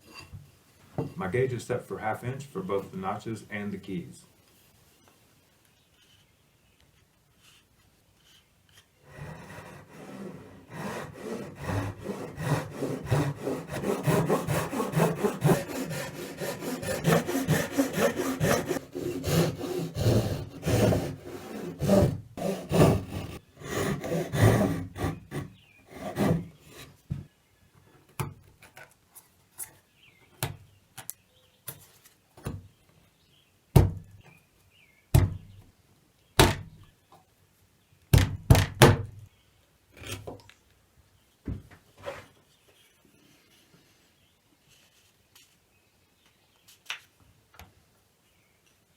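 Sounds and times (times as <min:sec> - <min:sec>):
handsaw cutting wood: 0:09.0 - 0:27.0.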